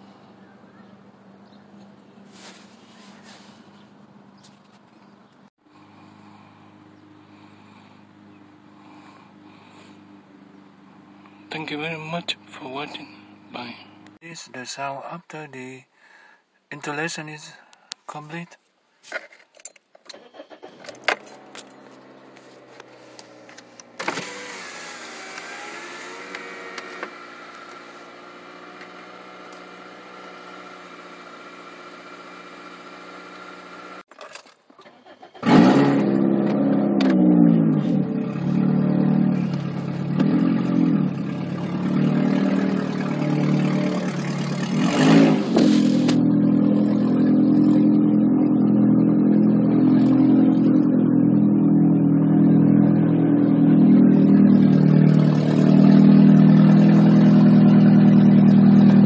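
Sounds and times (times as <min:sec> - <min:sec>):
car engine running: 0:00.0 - 0:14.2, 0:20.1 - 0:34.1, 0:34.9 - 0:59.0.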